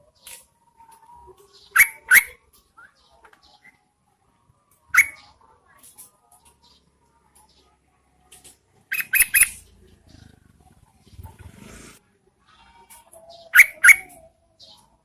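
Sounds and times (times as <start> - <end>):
bird calling sharp notes: 8.9 - 9.7.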